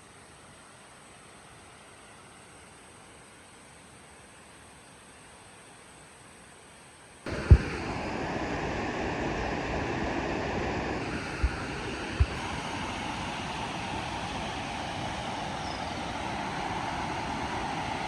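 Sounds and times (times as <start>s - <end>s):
low thumps: 7.3s - 7.8s, 11.2s - 12.4s
waterfall rushing: 7.3s - 18.0s.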